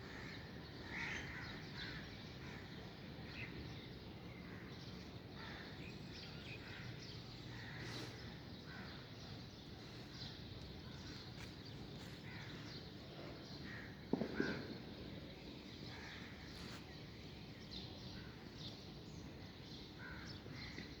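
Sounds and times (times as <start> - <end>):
harsh crow caws: 0.0 - 2.7, 20.0 - 20.8.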